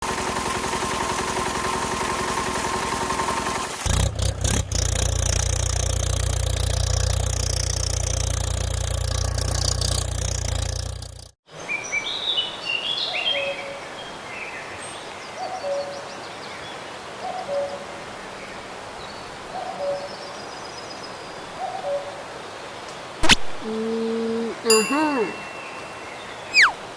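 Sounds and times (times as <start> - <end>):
small birds chirping: 19.0 - 26.8
bird two-note hoot: 24.7 - 26.8.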